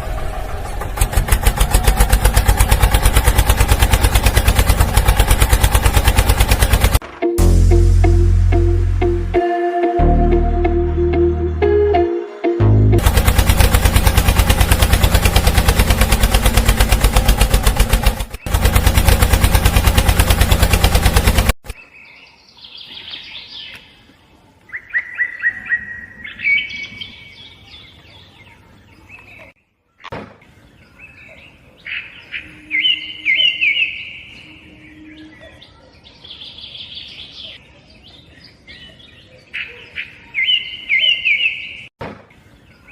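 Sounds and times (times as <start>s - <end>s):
rapid mechanical clatter: 0.0s - 7.0s, 13.0s - 21.8s
small birds chirping: 21.6s - 42.9s.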